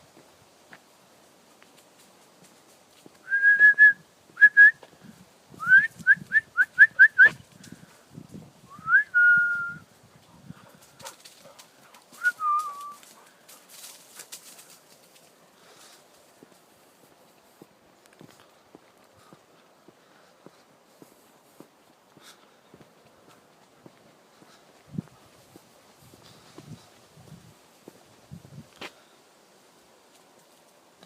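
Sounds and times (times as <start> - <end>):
person whistling: 3.2 - 4.8, 5.6 - 7.4, 8.7 - 9.8, 12.2 - 13.0.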